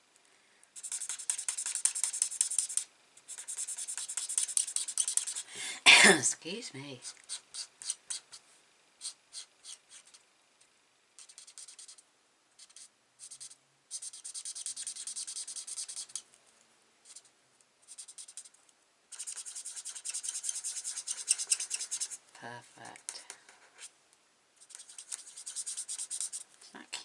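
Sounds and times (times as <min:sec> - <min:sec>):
marker scribbling on cardstock: 0:00.8 - 0:05.5, 0:07.0 - 0:08.4, 0:09.0 - 0:10.2, 0:11.2 - 0:12.0, 0:12.6 - 0:16.2, 0:17.1 - 0:17.3, 0:17.9 - 0:18.5, 0:19.1 - 0:22.2, 0:23.1 - 0:23.9, 0:24.6 - 0:26.6.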